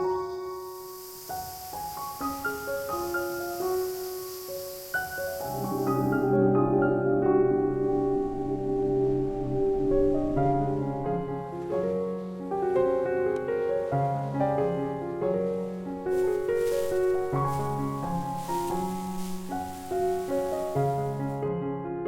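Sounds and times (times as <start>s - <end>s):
faint high hiss: 0.0s - 21.4s
soft piano music: 0.0s - 22.0s.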